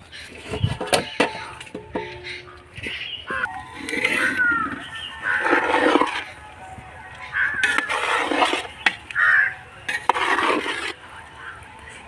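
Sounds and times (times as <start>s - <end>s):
harsh bird calls: 0.0s - 6.5s, 7.1s - 9.8s.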